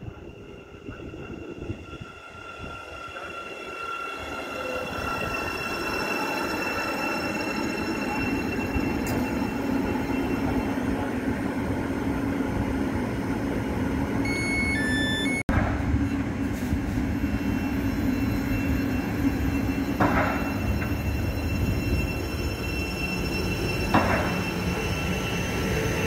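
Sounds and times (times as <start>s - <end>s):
train wheels rumbling on rail: 15.5s - 26.0s.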